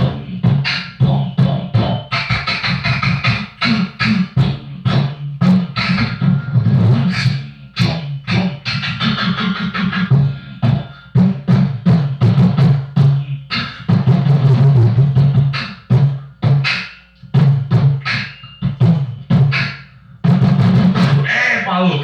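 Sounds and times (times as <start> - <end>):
beatboxing drum sounds: 0.0 - 22.0.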